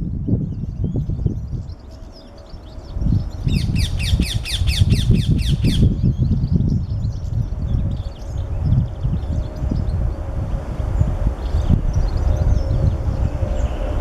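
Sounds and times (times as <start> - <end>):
low rumbling noise: 0.0 - 14.0
small birds twittering: 0.0 - 14.0
parakeets screeching: 3.4 - 6.0.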